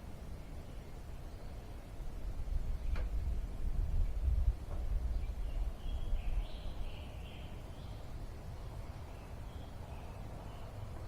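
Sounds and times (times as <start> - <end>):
faint bird chirps: 5.1 - 11.0.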